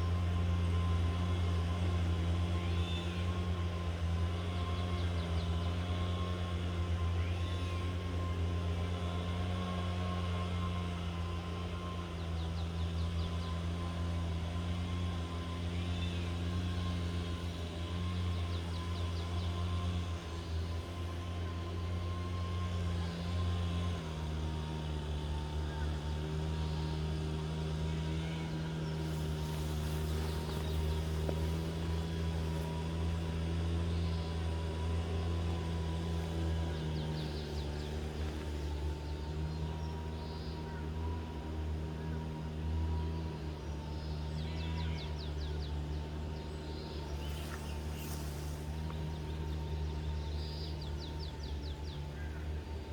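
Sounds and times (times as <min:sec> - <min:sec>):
boat engine drone: 0:00.0 - 0:52.9.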